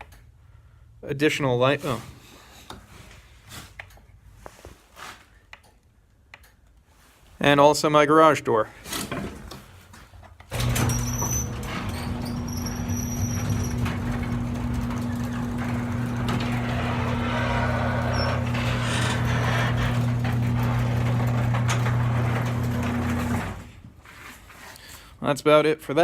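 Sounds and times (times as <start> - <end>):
garage door opener motor hum: 10.5 - 23.8
garage door rattling: 10.5 - 23.8.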